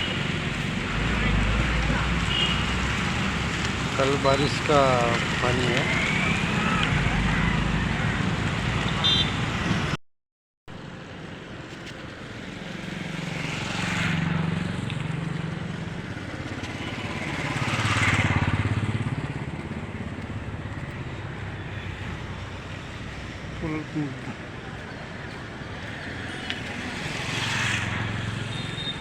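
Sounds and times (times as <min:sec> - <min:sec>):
rain: 0:00.0 - 0:09.0
street noise: 0:00.0 - 0:10.0, 0:10.7 - 0:29.0
vehicles passing: 0:00.0 - 0:10.0, 0:10.8 - 0:29.0.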